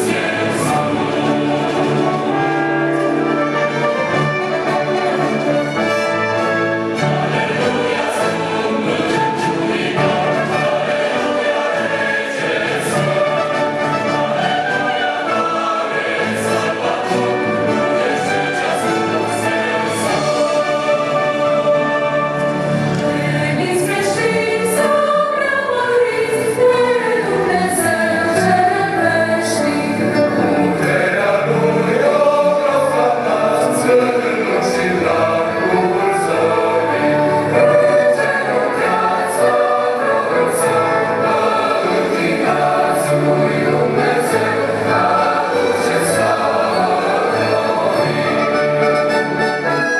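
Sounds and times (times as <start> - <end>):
choir singing worship song: 0.0 - 49.8.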